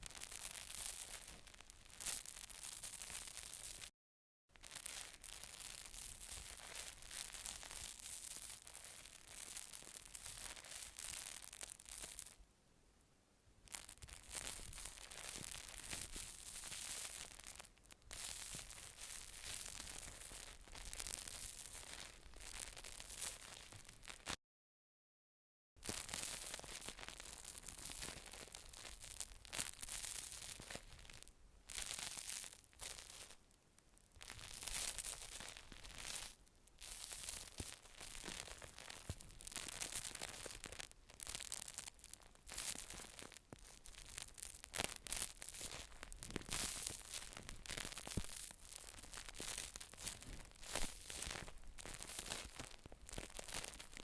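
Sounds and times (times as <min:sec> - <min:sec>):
rustling and scratching: 0:13.7 - 0:24.4, 0:34.3 - 0:54.0.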